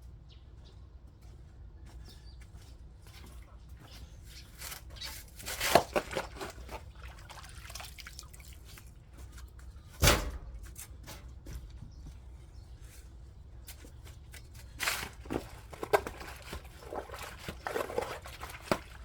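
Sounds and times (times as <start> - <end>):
water splashing: 5.5 - 9.0, 14.9 - 19.0
water dripping: 6.9 - 9.0.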